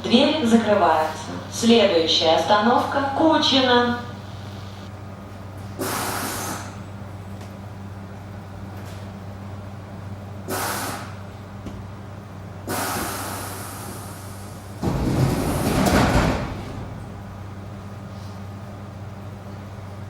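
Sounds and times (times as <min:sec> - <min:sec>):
electric train equipment humming: 0:00.0 - 0:20.0
pneumatic sliding doors closing: 0:05.7 - 0:06.8, 0:10.4 - 0:11.2, 0:12.6 - 0:18.5
compressed air hissing: 0:05.8 - 0:06.8, 0:10.4 - 0:11.2, 0:12.7 - 0:14.8.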